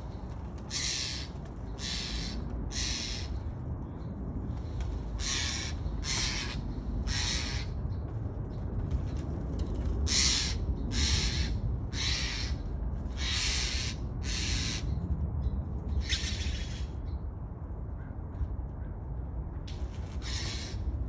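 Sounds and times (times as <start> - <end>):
jays harsh rasping calls: 0.7 - 3.4, 5.2 - 7.7, 10.1 - 12.6, 13.2 - 14.8, 20.2 - 20.8.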